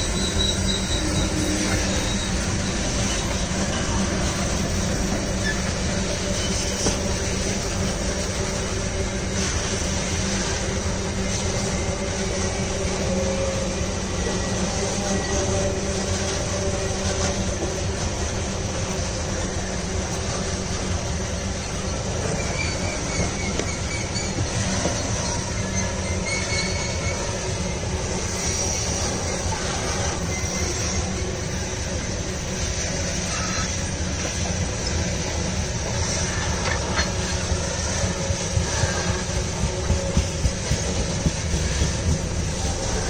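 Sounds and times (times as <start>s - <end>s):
freight train wheels clattering on rail: 0.0s - 43.0s.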